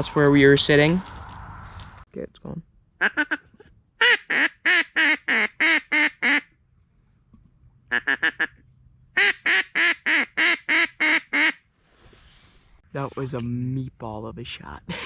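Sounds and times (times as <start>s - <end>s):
duck call quacking: 3.0s - 6.5s, 7.9s - 8.6s, 9.2s - 11.6s.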